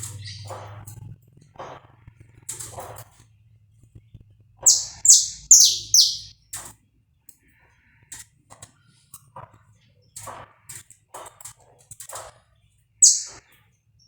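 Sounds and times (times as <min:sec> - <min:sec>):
faint short bird chips: 0:04.7 - 0:06.3, 0:13.0 - 0:13.4
finch singing descending notes: 0:04.7 - 0:06.3, 0:13.0 - 0:13.4.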